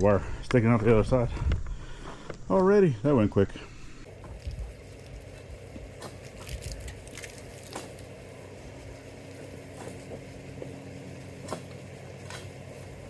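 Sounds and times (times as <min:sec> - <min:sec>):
engine humming: 0:04.1 - 0:13.0
handling clicks and crunches: 0:04.2 - 0:08.2.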